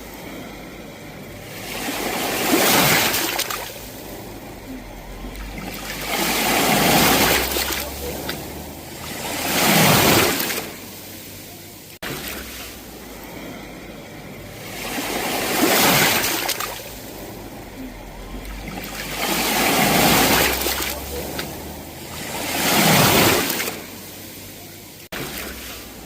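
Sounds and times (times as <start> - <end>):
sea waves breaking on shore: 0.0 - 26.0.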